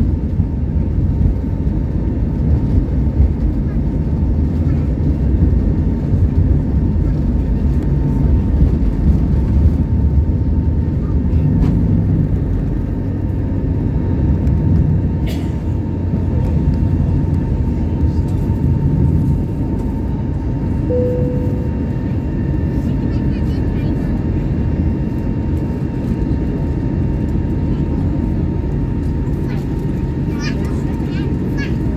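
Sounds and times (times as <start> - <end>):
aircraft cabin engine rumble: 0.0 - 31.9
thin steady tone: 20.9 - 21.9.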